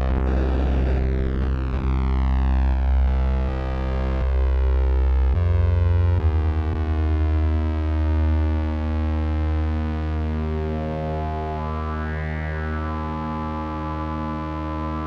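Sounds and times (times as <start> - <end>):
deep synthesizer drone: 0.0 - 7.8.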